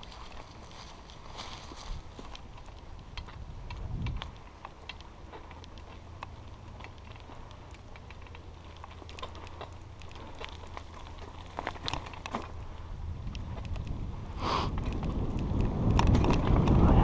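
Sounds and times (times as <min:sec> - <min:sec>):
small clicks and ticks: 0:00.0 - 0:14.1, 0:14.7 - 0:16.9
wind rumble on microphone: 0:00.0 - 0:17.0.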